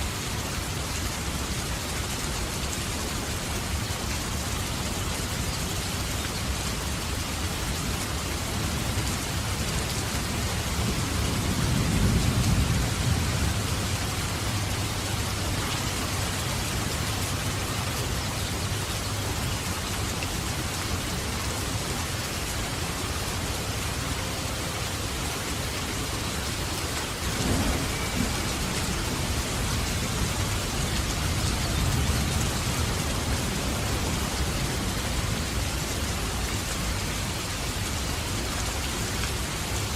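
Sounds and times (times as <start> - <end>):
heavy rain: 0.0 - 39.9
thunder rumbling: 10.6 - 17.6, 27.2 - 35.8.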